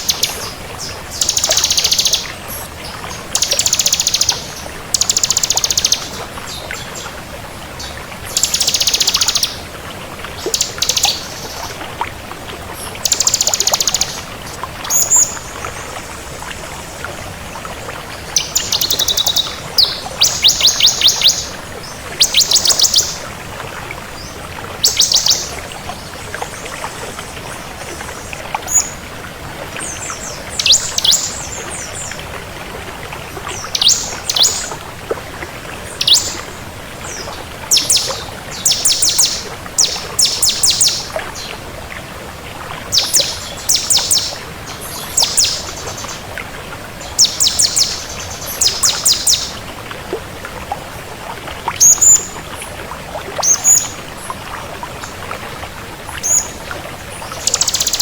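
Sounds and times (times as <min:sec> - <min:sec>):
bird chirping: 0:00.0 - 0:06.2, 0:07.8 - 0:09.6, 0:10.5 - 0:11.6, 0:13.0 - 0:14.2, 0:18.3 - 0:21.5, 0:22.2 - 0:23.2, 0:24.8 - 0:25.5, 0:30.2 - 0:32.1, 0:33.6 - 0:34.7, 0:35.9 - 0:36.5, 0:37.1 - 0:41.1, 0:42.9 - 0:46.2, 0:47.1 - 0:49.6, 0:57.4 - 0:58.0.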